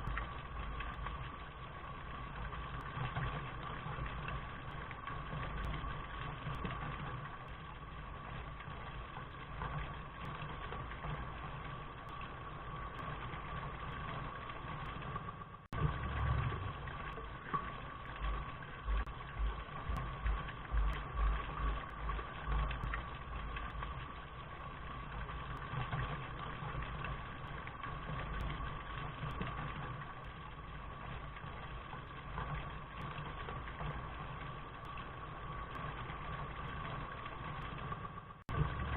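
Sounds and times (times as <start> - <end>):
rain: 0.0 - 38.9
low rumble: 15.7 - 26.1
low thuds: 18.9 - 23.1.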